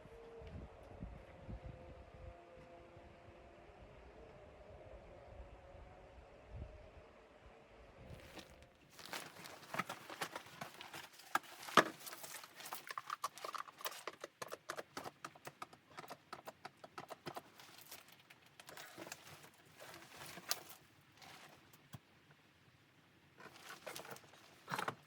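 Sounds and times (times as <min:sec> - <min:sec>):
sharp knocks and clicks: 0:12.9 - 0:17.7.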